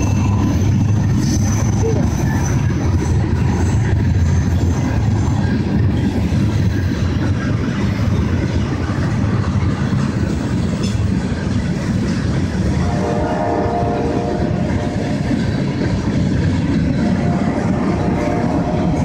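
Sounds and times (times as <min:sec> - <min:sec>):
freight train wheels rumbling: 0:00.0 - 0:19.0.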